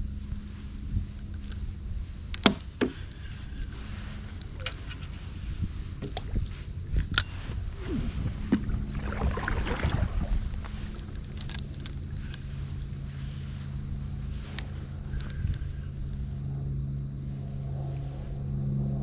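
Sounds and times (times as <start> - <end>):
steady low hum: 0.0 - 19.0
rustling and splashing: 2.6 - 13.6.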